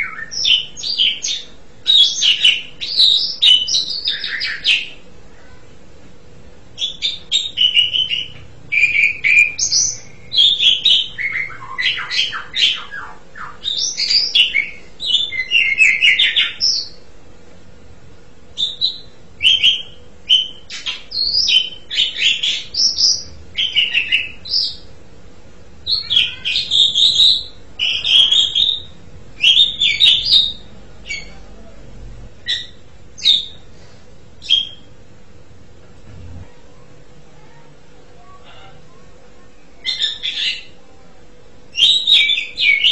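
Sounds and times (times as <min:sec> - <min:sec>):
starling singing: 0:00.0 - 0:05.1, 0:06.8 - 0:17.0, 0:18.6 - 0:25.0, 0:25.8 - 0:31.5, 0:32.3 - 0:33.7, 0:34.4 - 0:35.0, 0:39.8 - 0:40.8, 0:41.7 - 0:42.9.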